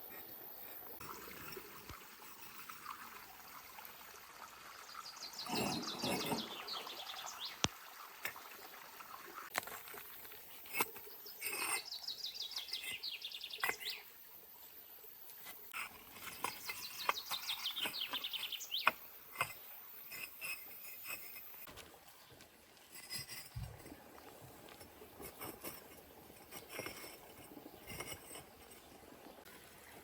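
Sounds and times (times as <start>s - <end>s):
bird singing trills: 5.1s - 7.7s, 11.1s - 14.1s, 16.4s - 19.0s.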